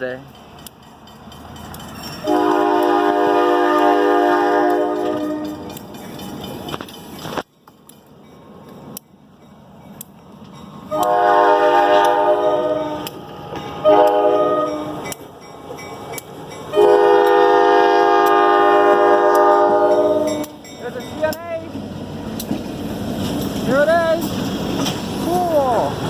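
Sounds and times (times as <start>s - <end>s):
train rumbling: 0.0s - 26.0s
locomotive air horn blasts: 2.2s - 5.7s, 10.9s - 13.1s, 13.8s - 15.0s, 16.7s - 20.5s.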